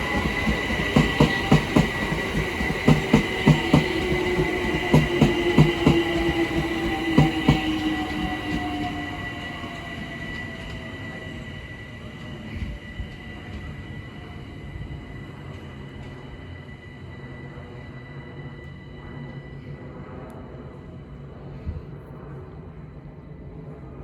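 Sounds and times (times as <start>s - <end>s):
train wheels clicking over rail joints: 0.0s - 8.7s
electric train motor whine: 0.0s - 12.0s
steady high tone: 0.0s - 19.8s.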